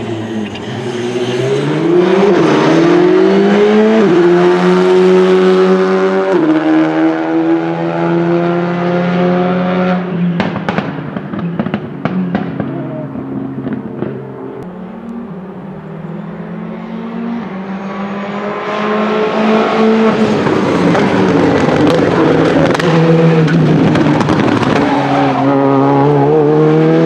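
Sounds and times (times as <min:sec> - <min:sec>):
rally car engine accelerating: 0:00.0 - 0:27.0
exhaust pops and bangs: 0:10.4 - 0:14.2, 0:20.9 - 0:24.9.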